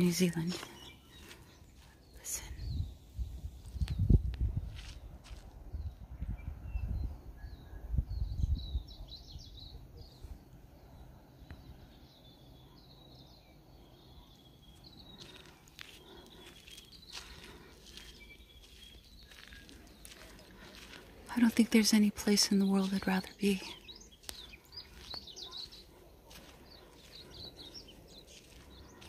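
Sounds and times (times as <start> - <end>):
wind rumble on microphone: 2.5 - 12.0
birds chirping and whistling: 12.0 - 21.1, 22.4 - 29.0.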